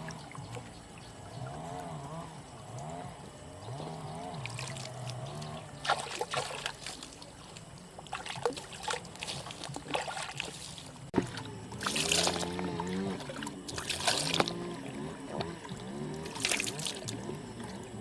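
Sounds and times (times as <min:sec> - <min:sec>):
water splashing and trickling: 0:00.0 - 0:18.0.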